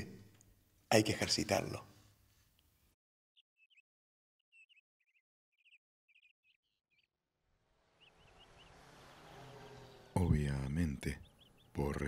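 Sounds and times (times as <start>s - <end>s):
faint bird chirps: 3.4s - 3.9s, 4.5s - 12.0s
outdoor ambient noise: 7.2s - 12.0s.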